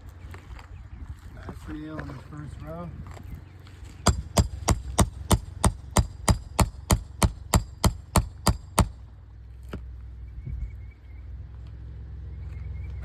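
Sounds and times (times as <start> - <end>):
hammer driving nail into shingle: 4.0 - 9.0.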